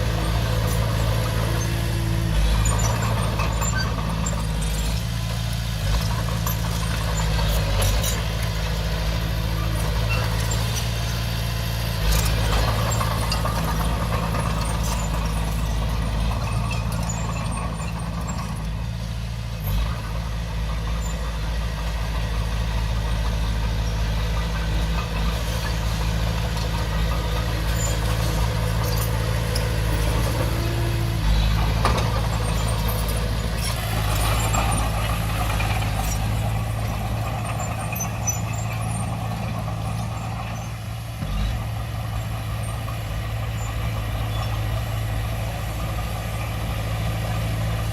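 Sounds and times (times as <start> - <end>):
bulldozer diesel engine running: 0.0 - 47.9.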